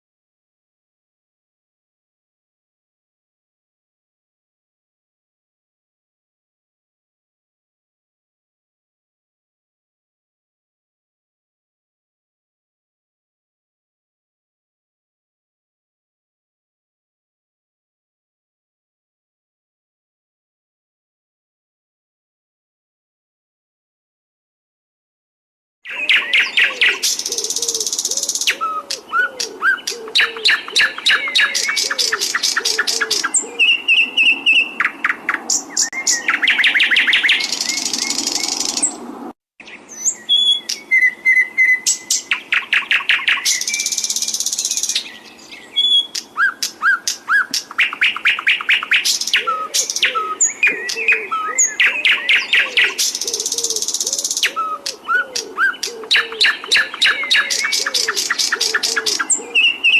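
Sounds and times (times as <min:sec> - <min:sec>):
low repeated bird warbling: 0:25.8 - 0:39.0, 0:39.6 - 0:59.9
songbird trills and chirps: 0:25.8 - 0:39.0, 0:39.6 - 0:59.9.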